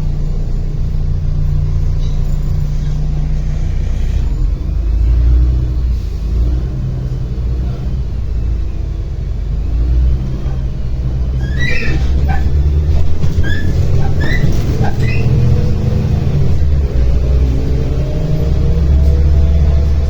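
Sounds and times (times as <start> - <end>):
bus engine and road rumble: 0.0 - 20.0
short high squeaks: 11.4 - 12.7, 13.4 - 15.5.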